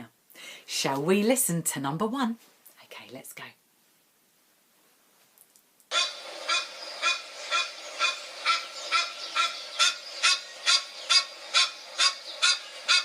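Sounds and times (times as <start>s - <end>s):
duck quacking: 5.9s - 13.0s.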